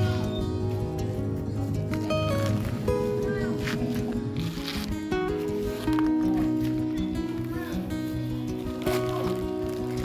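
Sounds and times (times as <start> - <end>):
music with held melodic notes: 0.0 - 10.0.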